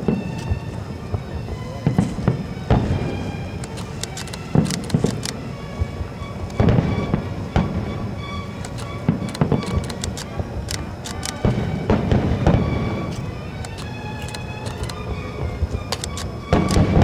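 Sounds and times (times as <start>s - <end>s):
heavy firework booms: 0.0s - 3.6s, 6.6s - 8.5s, 11.4s - 14.2s, 15.0s - 17.0s
fireworks bangs and crackles: 0.0s - 17.0s
music with sustained notes: 0.0s - 17.0s.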